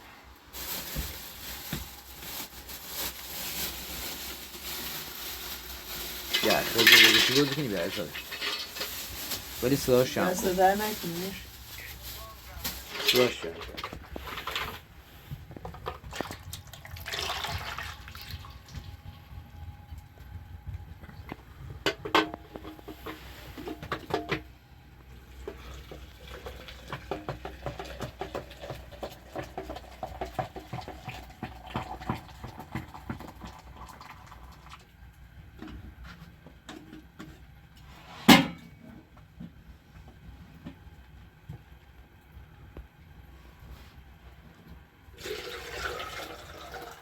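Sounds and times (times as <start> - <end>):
metal cookware clinking: 6.3 - 8.9.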